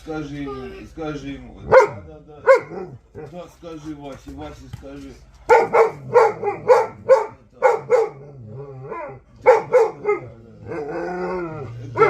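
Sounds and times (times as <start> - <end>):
dog barking in woofs: 1.7 - 3.0, 5.5 - 8.3, 8.9 - 10.3
dog moaning calls: 9.9 - 12.0.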